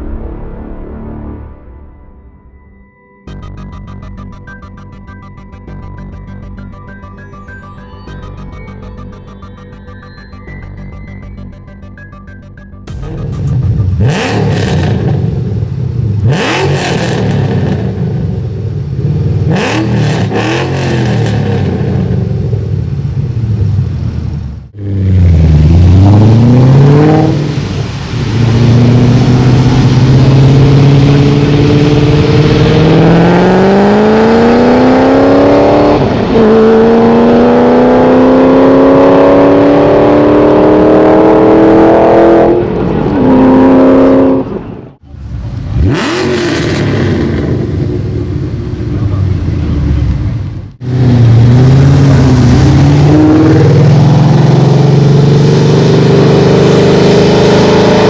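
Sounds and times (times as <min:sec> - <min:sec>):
car engine throttle blips: 0:03.3 - 0:58.0
car accelerating hard: 0:12.9 - 0:58.0.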